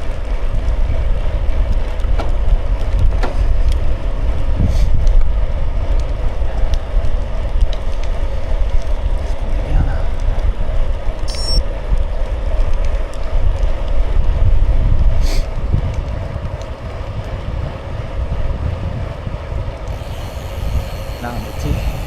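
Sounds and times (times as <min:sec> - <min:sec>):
bicycle tyres rolling on road: 0:00.0 - 0:22.0
wind buffeting microphone: 0:00.0 - 0:22.0
brief high chirp: 0:11.3 - 0:11.6.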